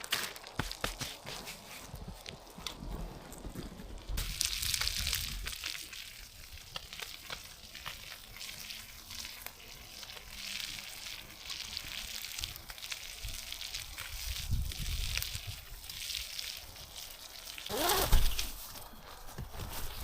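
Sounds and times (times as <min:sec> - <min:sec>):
food sizzling in a pan: 0:04.2 - 0:17.9.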